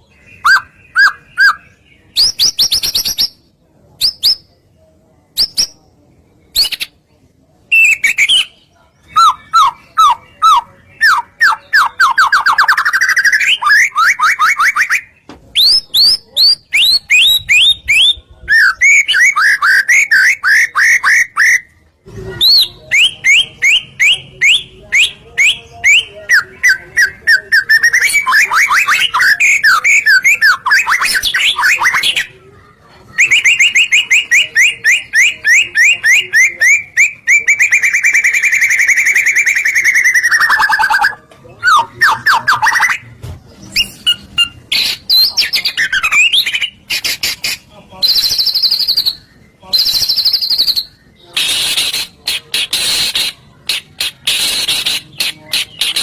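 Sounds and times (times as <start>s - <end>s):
bird singing whistled trills: 7.7s - 21.7s, 33.1s - 43.0s, 48.0s - 52.1s.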